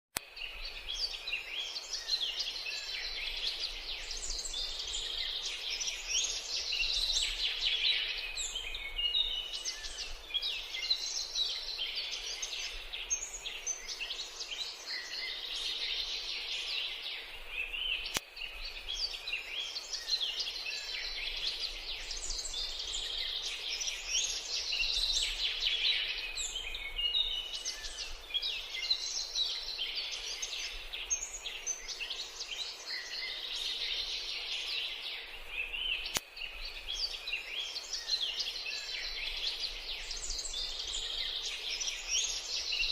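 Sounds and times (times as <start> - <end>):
sharp click: 18.0 - 18.3, 36.0 - 36.3.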